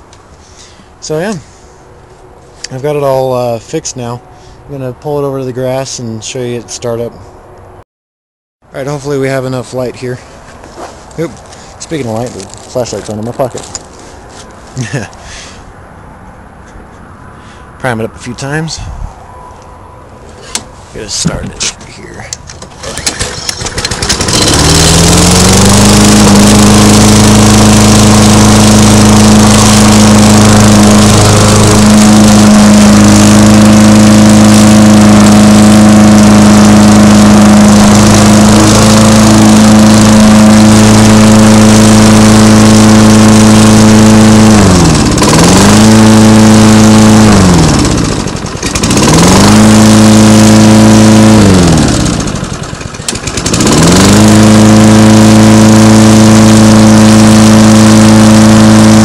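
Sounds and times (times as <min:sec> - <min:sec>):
lawn mower engine running: 0:08.8 - 0:15.5, 0:20.2 - 0:59.0.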